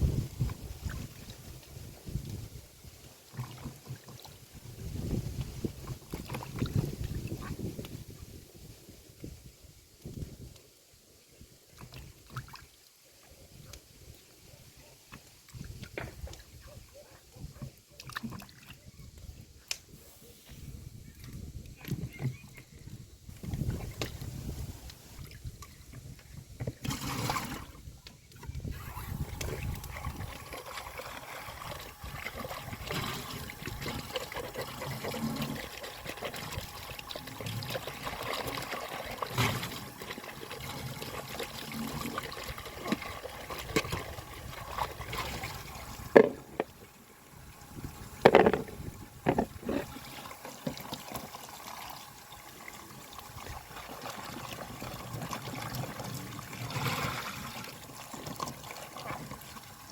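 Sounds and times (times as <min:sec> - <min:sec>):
water trickling: 0:28.8 - 0:59.9.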